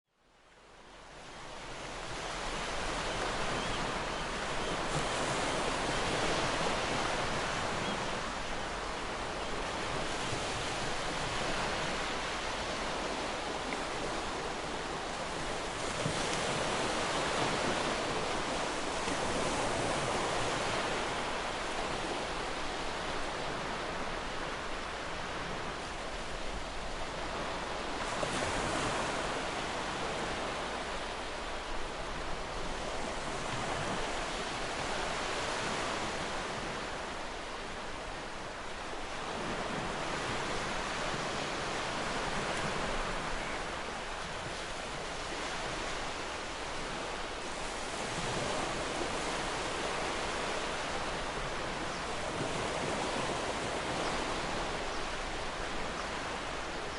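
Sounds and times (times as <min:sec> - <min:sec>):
ocean waves breaking on beach: 0:00.5 - 0:56.9.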